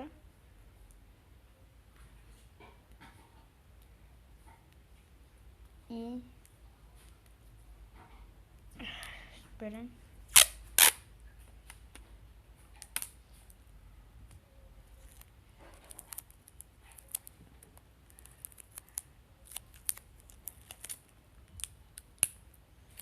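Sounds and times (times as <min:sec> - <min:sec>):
tape and paper crackling: 0:14.8 - 0:23.0.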